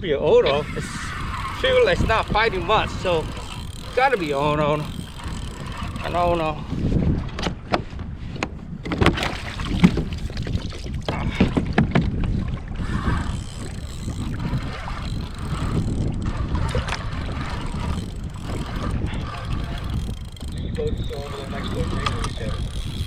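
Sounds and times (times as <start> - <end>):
water around kayak: 0.0 - 23.0
wind on microphone: 0.0 - 23.0.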